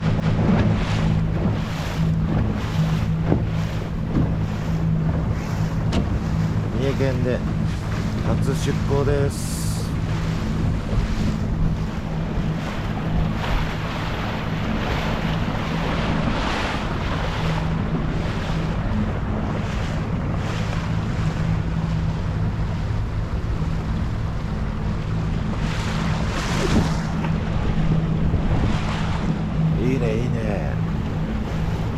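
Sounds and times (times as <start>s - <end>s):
boat engine humming: 0.0s - 31.9s
rushing water: 0.0s - 31.9s
wind buffeting microphone: 0.0s - 31.9s.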